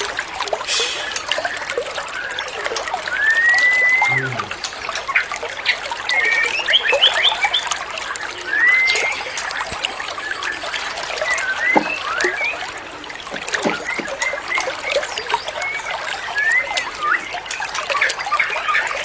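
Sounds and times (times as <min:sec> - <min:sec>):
water trickling: 0:00.0 - 0:19.0
bird whistling: 0:03.1 - 0:04.2, 0:08.5 - 0:09.2.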